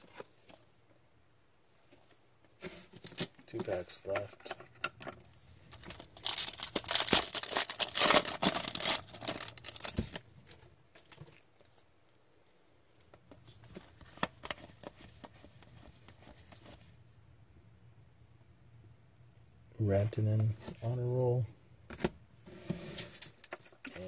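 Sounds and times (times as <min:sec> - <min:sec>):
foil wrapper crinkling: 0:05.9 - 0:10.6.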